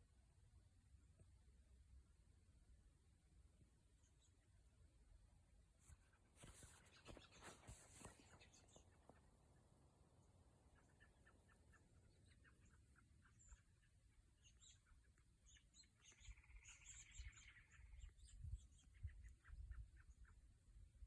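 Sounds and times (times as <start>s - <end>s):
small birds chirping: 3.9s - 4.8s, 5.8s - 20.8s
bird trilled song: 10.7s - 20.5s.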